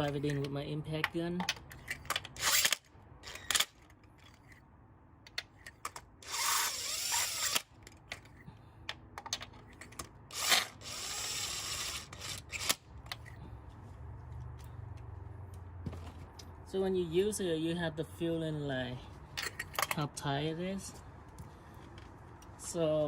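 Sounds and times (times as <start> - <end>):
impact gun whining: 6.2 - 7.8, 10.3 - 13.3.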